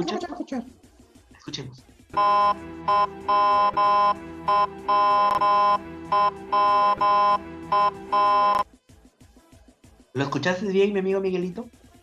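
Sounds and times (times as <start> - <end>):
ambulance siren pulsed horn tone: 2.2 - 8.6
faint steady lower tone: 2.2 - 8.6.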